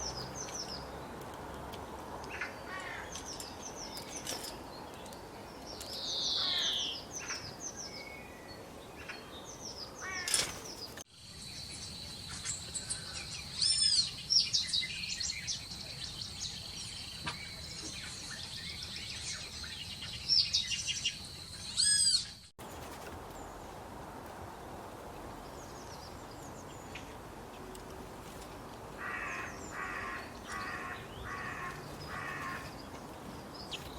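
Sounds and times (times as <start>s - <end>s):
birds chirping: 0.0s - 23.8s, 25.3s - 33.9s
harsh bird calls: 5.8s - 11.0s, 29.0s - 33.9s.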